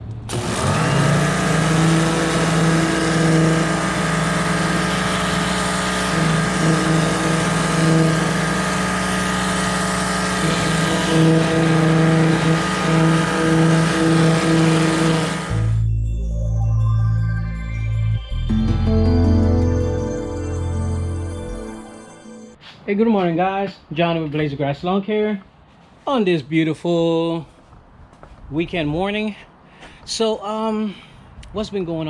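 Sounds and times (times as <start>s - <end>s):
pressure washer motor hum: 0.0s - 15.8s
water jet hissing: 0.3s - 15.8s.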